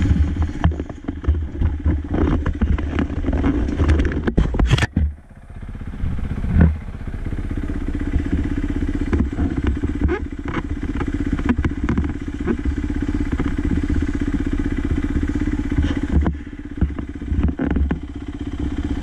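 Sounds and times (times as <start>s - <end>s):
sharp clattering knocks: 0.0s - 5.2s, 8.1s - 14.0s, 15.1s - 18.3s
dirt bike engine revving: 5.6s - 19.0s.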